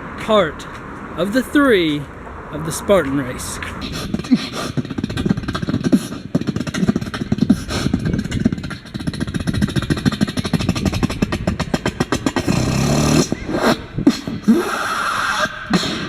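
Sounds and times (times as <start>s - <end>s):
fast mouth clicks: 3.6s - 14.4s
beatboxing kick and snare: 3.8s - 16.0s.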